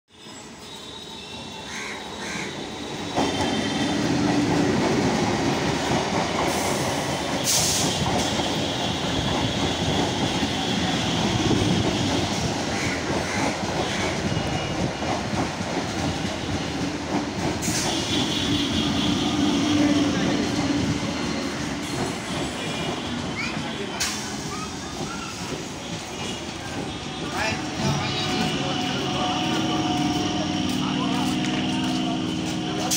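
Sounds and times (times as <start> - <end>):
train wheels rumbling on rails: 2.2 - 32.9.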